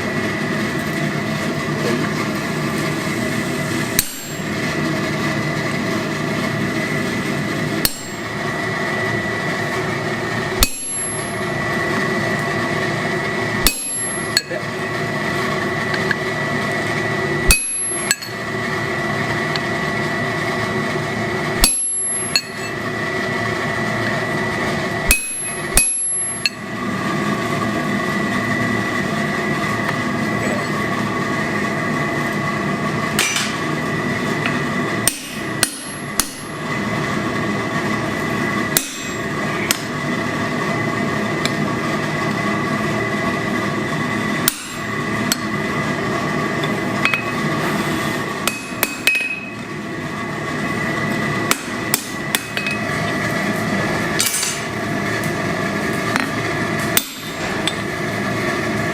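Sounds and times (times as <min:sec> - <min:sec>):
steady mechanical hum: 0:00.0 - 0:58.9
hammer striking steel on anvil: 0:04.0 - 0:04.6, 0:07.8 - 0:08.3, 0:10.6 - 0:11.5, 0:13.6 - 0:14.6, 0:17.4 - 0:18.4, 0:21.6 - 0:22.8, 0:25.1 - 0:26.6, 0:34.5 - 0:36.6, 0:38.7 - 0:39.9, 0:44.4 - 0:45.5, 0:47.0 - 0:47.4, 0:48.4 - 0:49.6, 0:51.5 - 0:52.9, 0:57.0 - 0:57.8.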